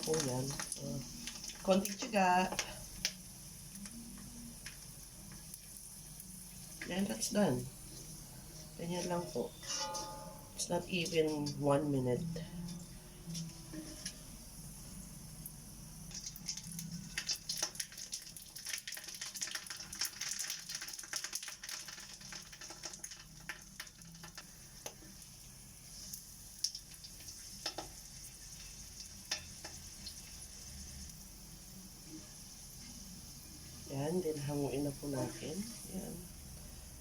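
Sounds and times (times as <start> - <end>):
food sizzling in hot oil: 0.0 - 37.0.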